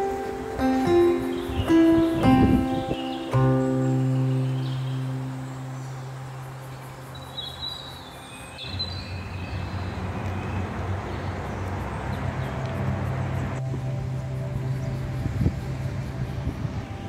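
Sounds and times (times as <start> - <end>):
bird chirps: 0.0 - 11.4
moving train running noise: 9.9 - 17.0.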